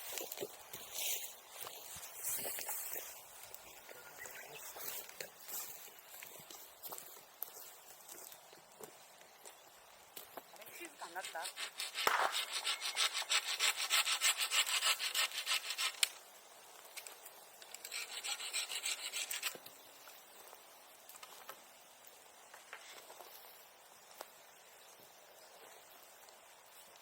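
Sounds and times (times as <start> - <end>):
hand saw cutting wood: 11.0 - 16.2, 17.8 - 19.6.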